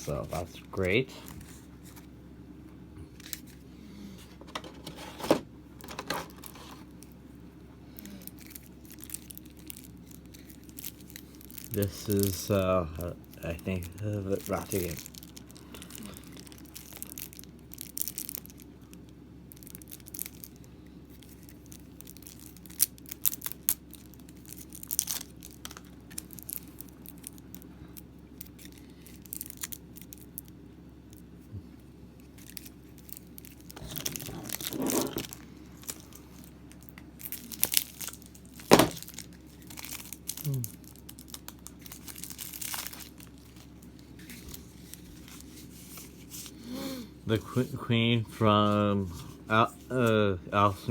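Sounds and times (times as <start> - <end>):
packaging crinkling and tearing: 4.5 - 7.2, 7.9 - 31.3, 32.2 - 46.6.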